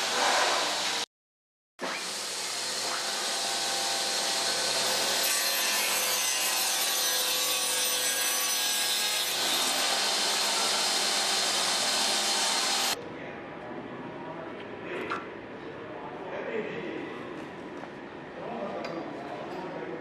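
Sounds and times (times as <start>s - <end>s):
table saw cutting wood: 1.8s - 13.0s.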